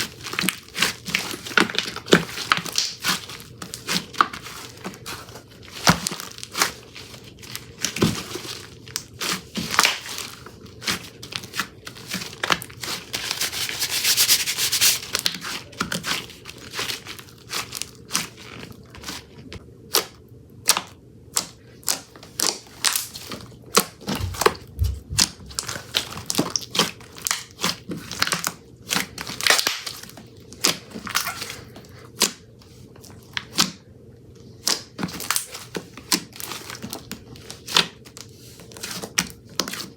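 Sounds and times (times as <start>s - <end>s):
slime squished by hand: 0.0s - 19.3s, 19.9s - 32.4s
slime crackling: 0.0s - 32.4s.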